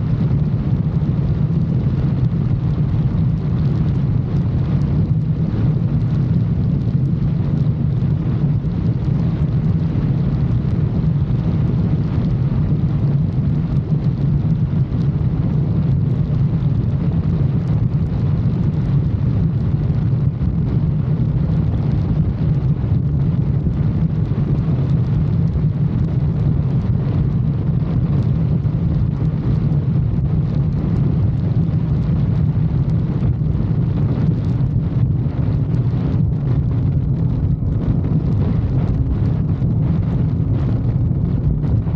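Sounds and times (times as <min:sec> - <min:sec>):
wind noise on microphone: 0:00.0 - 0:41.9.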